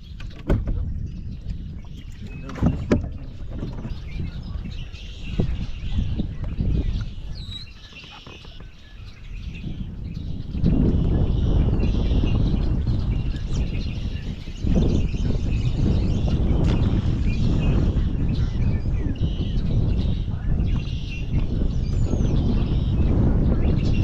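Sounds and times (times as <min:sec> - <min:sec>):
birds chirping: 0:00.0 - 0:24.0
wind rumbling on microphone: 0:00.0 - 0:24.0
knocks against boat: 0:00.2 - 0:00.9, 0:02.4 - 0:04.1.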